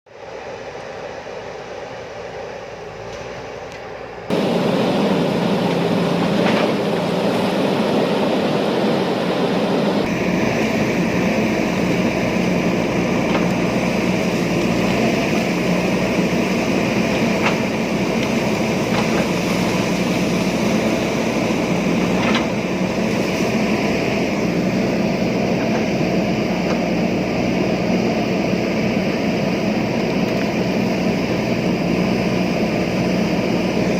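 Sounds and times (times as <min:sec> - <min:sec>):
diesel engine running under load: 0:00.2 - 0:33.9.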